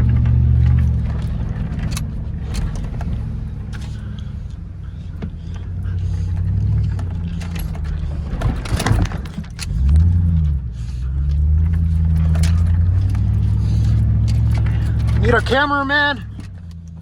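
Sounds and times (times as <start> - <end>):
truck engine revving: 0.0 - 17.0
rattling and jangling: 0.4 - 16.9.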